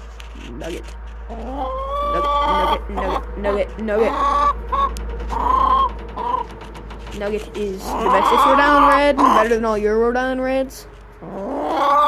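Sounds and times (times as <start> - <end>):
chicken long call: 1.3 - 3.3, 4.0 - 6.4, 7.9 - 9.4, 11.2 - 12.0
chickens clucking and squawking: 1.3 - 6.6, 7.5 - 9.8, 11.2 - 12.0.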